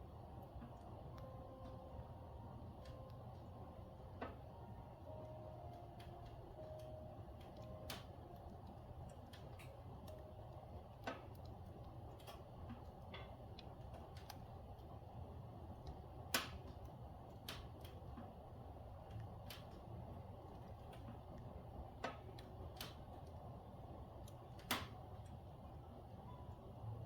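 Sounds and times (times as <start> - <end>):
firewood crackling: 0.0 - 26.2
sharp fire pops: 16.3 - 16.8.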